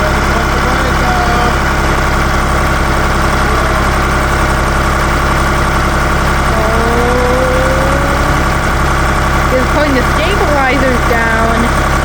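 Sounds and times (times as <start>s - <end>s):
diesel engine running: 0.0s - 12.0s
faint rising tone: 6.5s - 9.6s.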